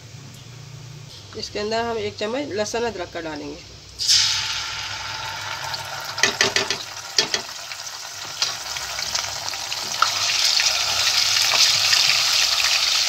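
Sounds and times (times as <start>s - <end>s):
paste sizzling in hot oil: 4.0s - 13.0s.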